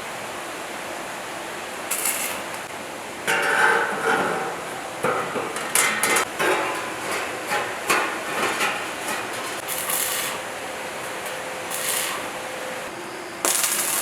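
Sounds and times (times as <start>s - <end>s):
hand tools knocking and scraping: 3.3s - 10.4s.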